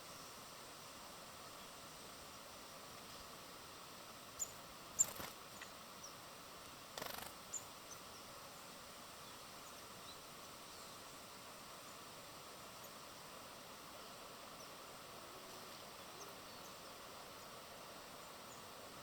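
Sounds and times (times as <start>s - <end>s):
steady outdoor hiss: 0.0s - 19.0s
small birds chirping: 4.3s - 6.2s, 7.0s - 8.4s.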